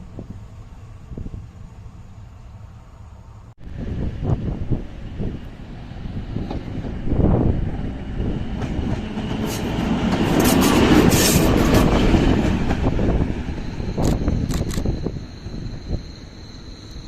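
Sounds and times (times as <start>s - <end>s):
train passing: 0.0s - 17.0s.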